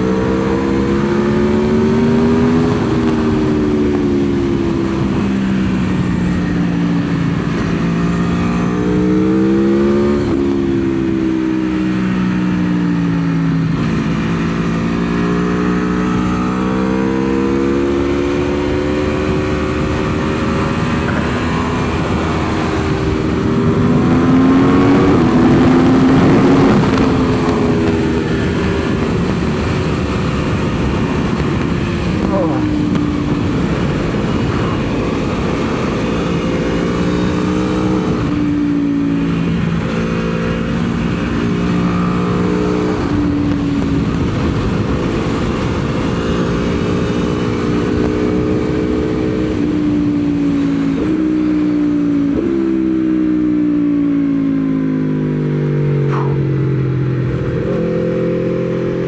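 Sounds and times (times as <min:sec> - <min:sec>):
motorcycle engine accelerating: 0:00.0 - 0:59.0
wind rushing: 0:18.7 - 0:38.5, 0:56.0 - 0:58.8.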